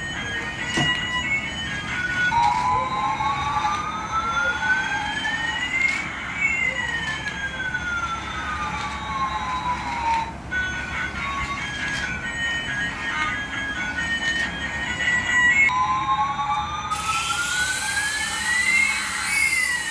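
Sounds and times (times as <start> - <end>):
electronic siren wailing: 14.9 - 19.9.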